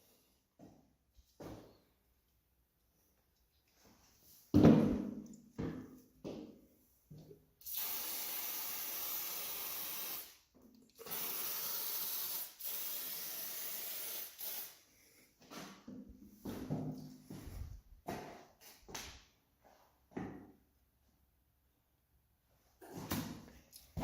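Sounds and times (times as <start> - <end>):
aerosol can spraying: 7.6 - 10.4, 11.0 - 14.8.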